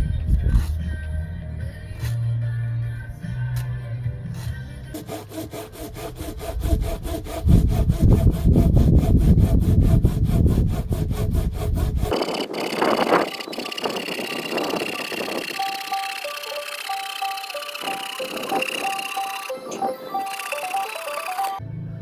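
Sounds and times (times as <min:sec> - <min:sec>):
saw cutting firewood: 0:04.4 - 0:21.6.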